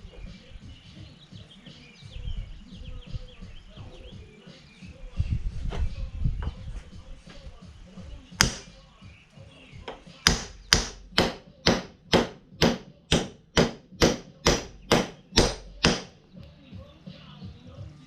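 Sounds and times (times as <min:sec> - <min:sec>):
hammer striking metal: 0:08.4 - 0:08.7, 0:10.3 - 0:16.1.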